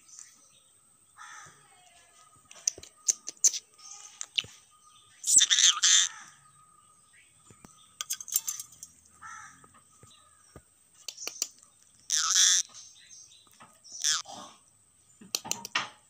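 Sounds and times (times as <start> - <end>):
parrot squawking: 5.2 - 6.3, 12.1 - 12.7, 14.0 - 14.3
sharp clicks: 11.0 - 12.5, 15.3 - 15.8.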